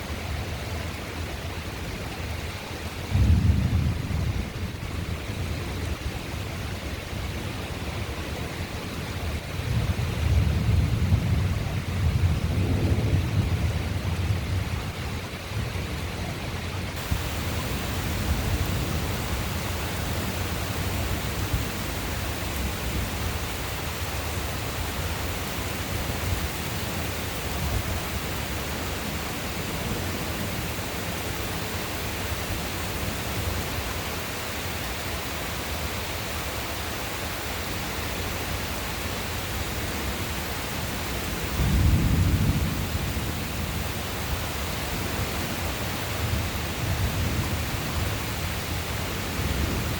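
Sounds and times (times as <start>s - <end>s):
steady rain hiss: 0.0s - 49.9s
thunder rumbling: 3.1s - 5.5s, 9.7s - 14.9s, 17.0s - 33.6s, 41.4s - 45.6s.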